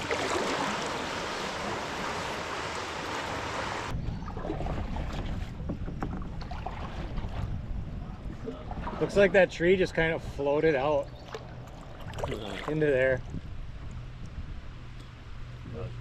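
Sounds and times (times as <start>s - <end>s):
hiss of moving water: 0.0s - 3.9s
wind noise on microphone: 3.4s - 10.4s, 11.8s - 16.0s.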